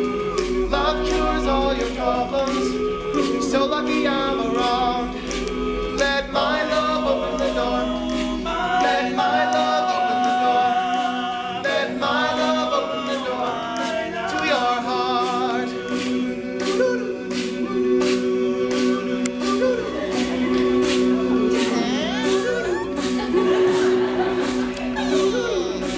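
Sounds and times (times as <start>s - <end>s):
male a cappella group singing: 0.0s - 25.9s
sharp percussive hits: 0.0s - 25.9s
lead male voice singing: 6.0s - 17.5s, 18.1s - 25.9s.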